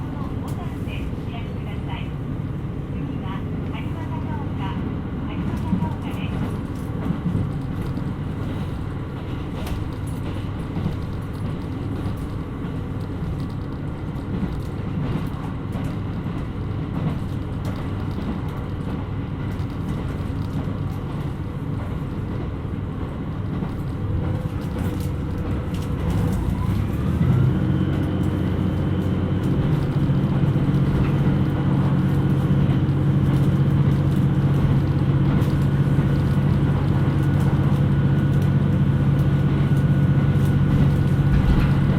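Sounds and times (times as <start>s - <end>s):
diesel railcar rumbling: 0.0s - 41.9s
engine drone: 24.8s - 41.9s.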